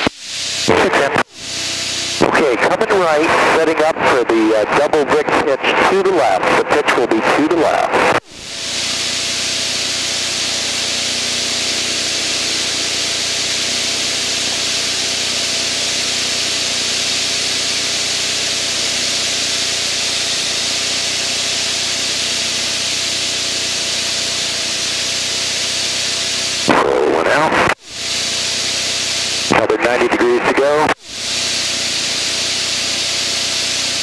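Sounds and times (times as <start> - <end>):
low engine drone: 0.0 - 34.0
airflow hiss: 8.2 - 26.7, 27.8 - 34.0.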